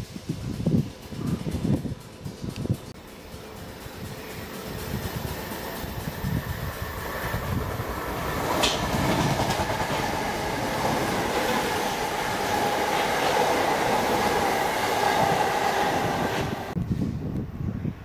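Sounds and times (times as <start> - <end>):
train wheels clattering on rails: 0.0 - 16.8
train whine: 0.0 - 18.0.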